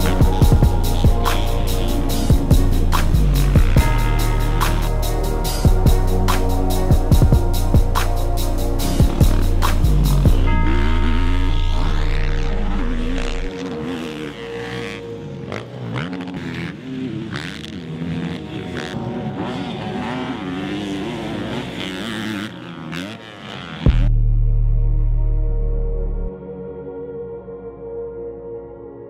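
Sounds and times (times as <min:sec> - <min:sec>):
bass-heavy music: 0:00.0 - 0:15.3, 0:23.8 - 0:26.9
motocross engines revving: 0:00.0 - 0:24.1.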